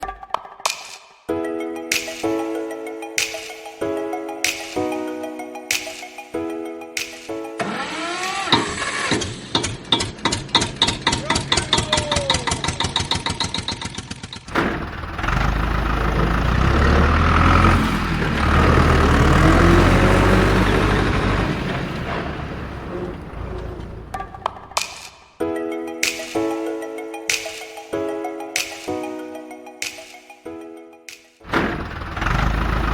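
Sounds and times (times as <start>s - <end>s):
engine starting and running: 7.6s - 24.8s, 31.5s - 32.9s.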